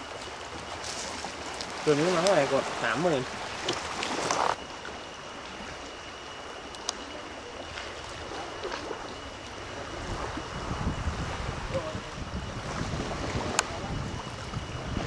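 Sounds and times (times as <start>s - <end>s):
sea water splashing: 0.0s - 15.0s
wind buffeting microphone: 7.7s - 15.0s.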